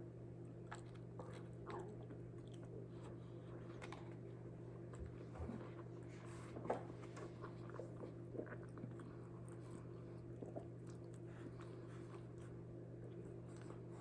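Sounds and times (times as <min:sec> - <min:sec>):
person chewing: 0:07.3 - 0:13.8.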